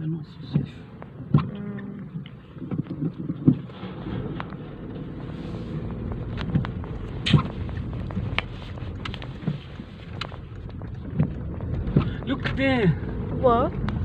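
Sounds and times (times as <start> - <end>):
car engine and tyre rumble: 0.0 - 14.0.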